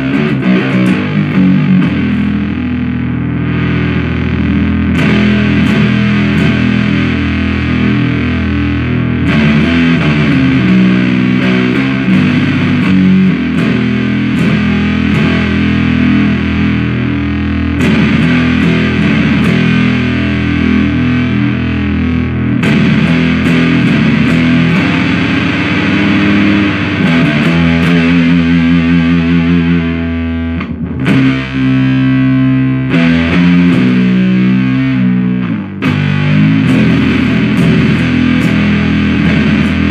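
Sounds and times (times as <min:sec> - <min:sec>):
fuzzed electric guitar riffs: 0:00.0 - 0:39.9.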